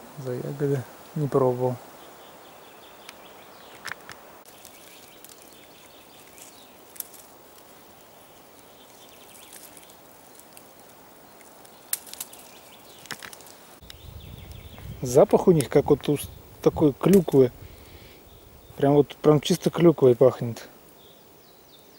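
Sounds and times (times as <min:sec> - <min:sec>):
faint steady hiss: 0:00.0 - 0:21.9
soft clicks and rustles: 0:03.0 - 0:08.1, 0:08.8 - 0:14.6.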